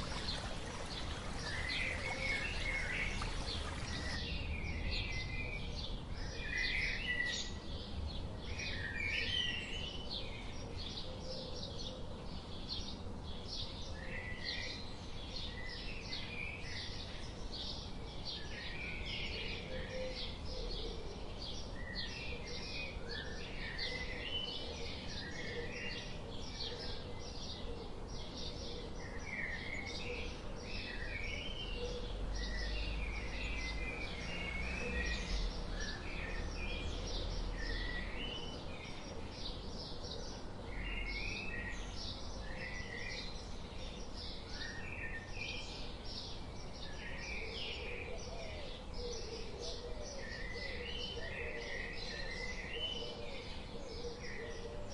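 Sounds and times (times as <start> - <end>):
birds chirping and warbling: 0.0 - 54.9.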